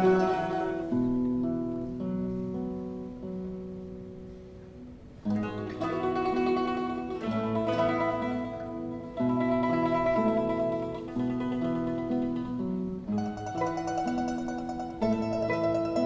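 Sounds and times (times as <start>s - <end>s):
mandolin orchestra playing: 0.0s - 2.2s, 5.3s - 16.0s.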